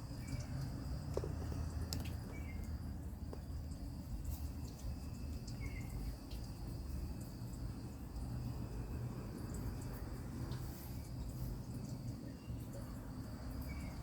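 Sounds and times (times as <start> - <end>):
constant low rumble: 0.0 - 14.0
high insect drone: 0.0 - 14.0
bird chirps: 2.3 - 2.7, 5.5 - 6.1.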